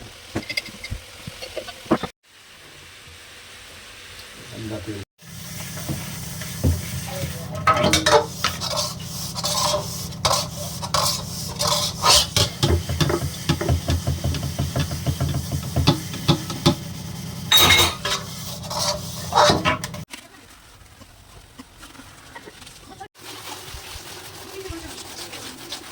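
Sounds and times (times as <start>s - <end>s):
food sizzling in a pan: 0.8s - 20.1s
utensil scraping a pan: 5.6s - 20.1s
metal knocking on a pan: 10.2s - 16.9s.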